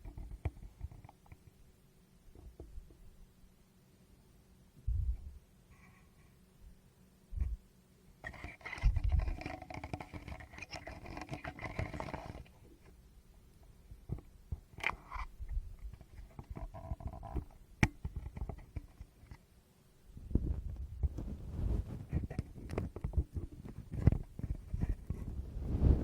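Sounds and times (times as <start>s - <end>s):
fingers rubbing microphone: 8.3s - 12.5s, 20.3s - 26.0s.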